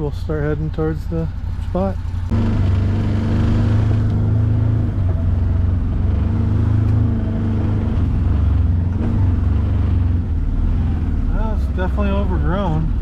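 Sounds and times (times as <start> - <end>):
utility vehicle engine hum: 0.0 - 13.0.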